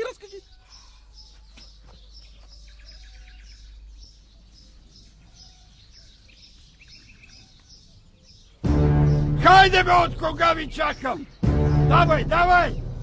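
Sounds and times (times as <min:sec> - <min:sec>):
bird chirping: 0:00.0 - 0:13.0
bird trilling: 0:10.1 - 0:11.9.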